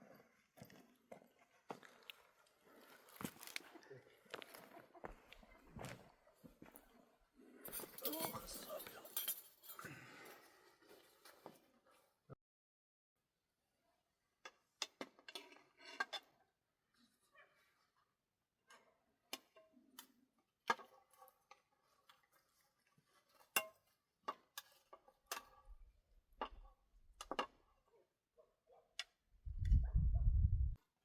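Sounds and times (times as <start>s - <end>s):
loud low rumble: 29.5s - 30.8s.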